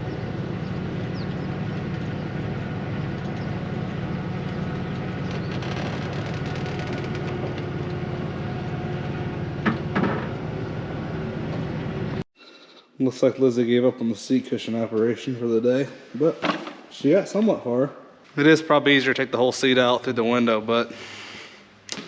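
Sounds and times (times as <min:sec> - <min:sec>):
vehicle engine running: 0:00.0 - 0:12.3.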